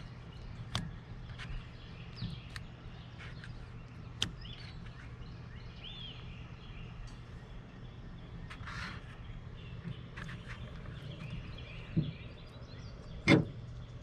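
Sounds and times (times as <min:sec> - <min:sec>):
bird chirps: 0:00.0 - 0:14.0
low steady rumble: 0:00.0 - 0:14.0.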